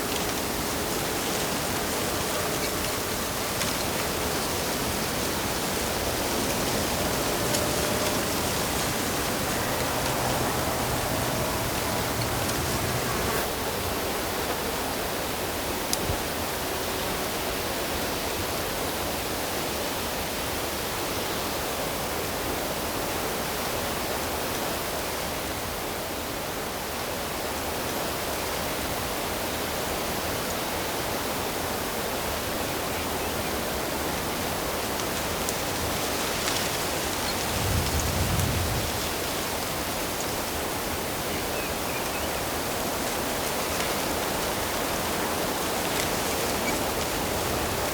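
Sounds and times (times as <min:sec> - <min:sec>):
rushing water: 0:00.0 - 0:13.5, 0:33.8 - 0:47.9.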